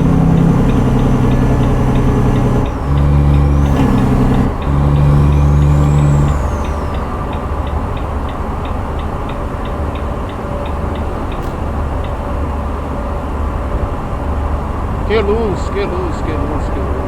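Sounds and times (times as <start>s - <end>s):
loud steady pitched tone: 0.0s - 10.1s
turn signal ticking: 0.0s - 12.7s
truck engine running: 0.0s - 17.0s.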